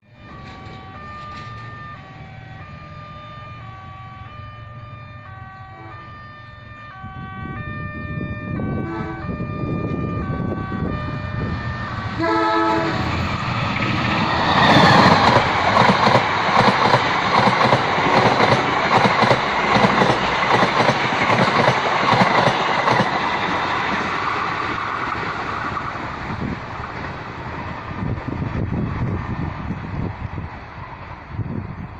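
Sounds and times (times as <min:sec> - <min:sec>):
train rumble and wheel clatter: 0:00.0 - 0:31.9
train horn: 0:00.1 - 0:13.2, 0:17.8 - 0:20.4.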